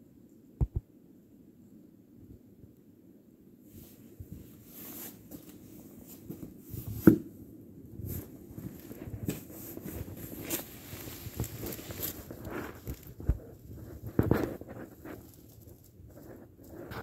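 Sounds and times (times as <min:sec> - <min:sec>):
scuffs and clicks: 0:03.9 - 0:07.2, 0:08.0 - 0:17.0
crunching in snow: 0:08.0 - 0:17.0.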